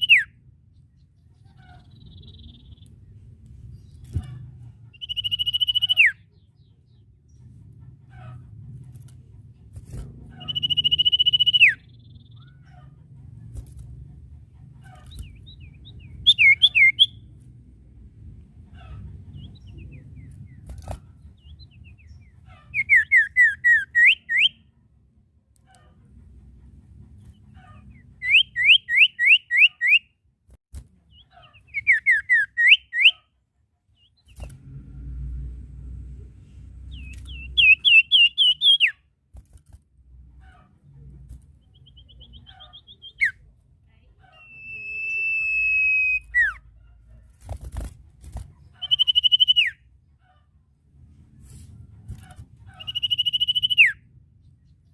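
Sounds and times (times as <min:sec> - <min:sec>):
bird whistled calls: 0:00.0 - 0:00.3, 0:05.0 - 0:06.2, 0:10.4 - 0:12.0, 0:16.2 - 0:17.2, 0:28.2 - 0:30.1, 0:36.9 - 0:39.0, 0:44.4 - 0:46.6, 0:48.8 - 0:49.8, 0:52.8 - 0:54.0.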